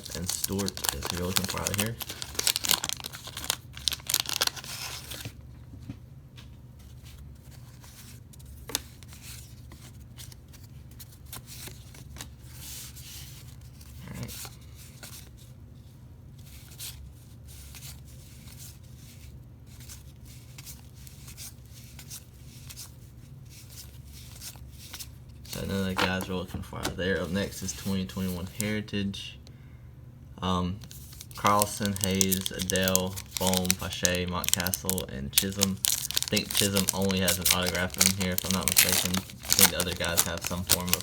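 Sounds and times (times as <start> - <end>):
cards rustling and clicking: 0.0 - 5.4, 23.6 - 28.8, 30.8 - 41.0
wax wrapper tearing and crinkling: 0.0 - 5.4, 30.8 - 41.0
steady low hum: 23.0 - 41.0.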